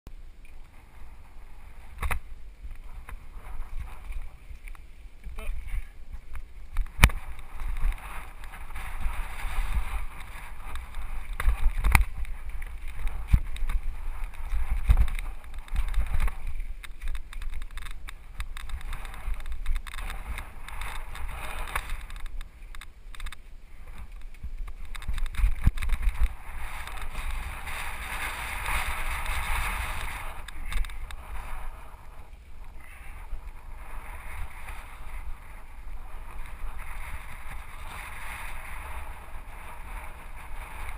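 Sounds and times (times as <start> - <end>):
wind and tyre noise: 0.1 - 40.9
bike knocks and rattles over rocks: 2.0 - 2.3, 6.2 - 23.4, 24.0 - 31.1.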